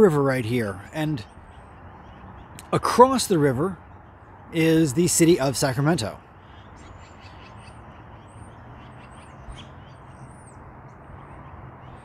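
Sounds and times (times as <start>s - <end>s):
distant road traffic rumble: 0.0s - 12.0s
small birds calling: 0.0s - 12.0s.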